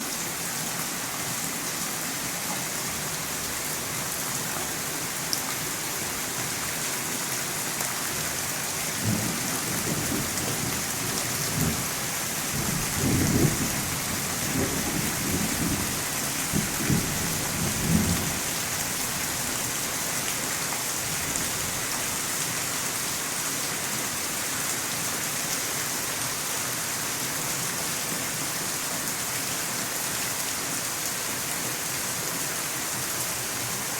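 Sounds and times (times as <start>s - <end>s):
steady rain falling: 0.0s - 33.9s
thunder rumbling: 12.5s - 13.9s.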